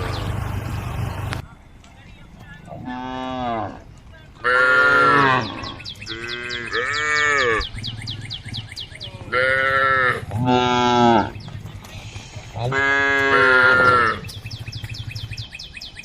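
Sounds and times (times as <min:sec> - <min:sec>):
cows mooing: 0:02.6 - 0:07.8, 0:09.1 - 0:11.4, 0:12.1 - 0:14.3.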